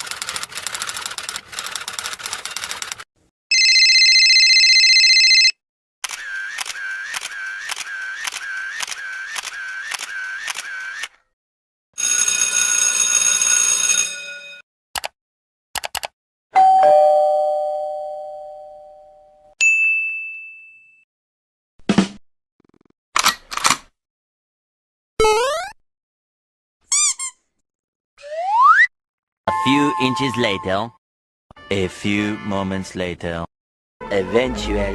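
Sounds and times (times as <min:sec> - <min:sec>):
quick clicks: 0:15.8 - 0:16.2.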